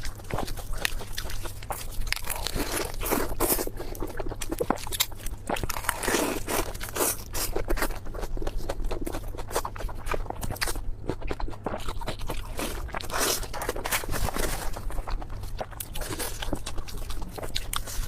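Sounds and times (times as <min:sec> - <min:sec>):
chewing and crunching food: 0:00.0 - 0:18.0.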